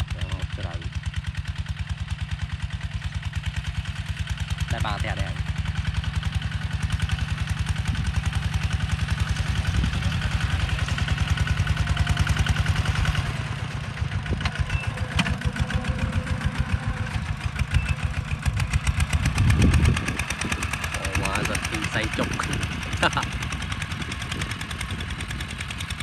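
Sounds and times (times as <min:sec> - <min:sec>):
tractor diesel engine chugging: 0:00.0 - 0:26.0.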